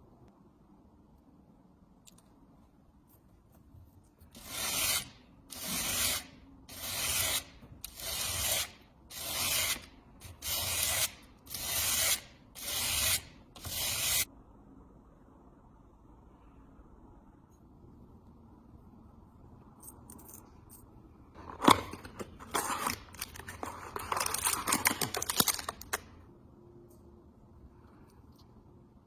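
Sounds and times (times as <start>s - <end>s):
hand sanding strokes: 4.4s - 14.3s.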